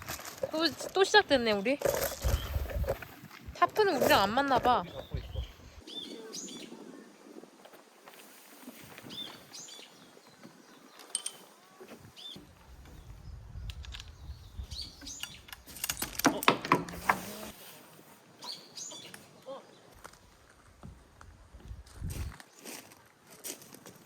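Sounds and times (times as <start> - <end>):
small birds chirping: 0.5 - 7.8, 8.8 - 16.6, 18.3 - 20.4.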